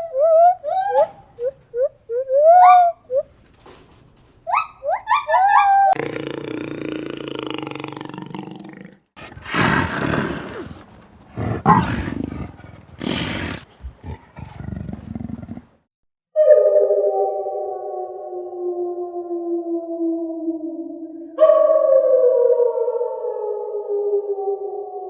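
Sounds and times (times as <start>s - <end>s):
large animal calling: 9.2s - 15.7s.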